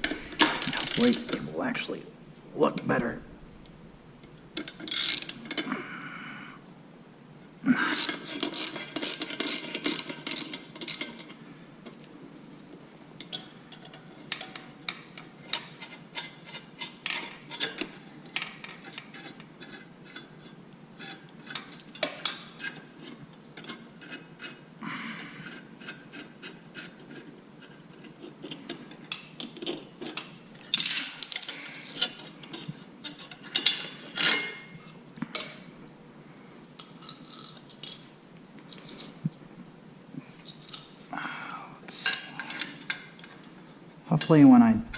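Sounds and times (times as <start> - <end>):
tools and metal clinking: 0.0 - 1.5, 4.6 - 5.7, 7.9 - 12.1, 13.2 - 24.2, 25.4 - 35.7, 36.8 - 39.5, 40.4 - 41.0, 42.0 - 44.9.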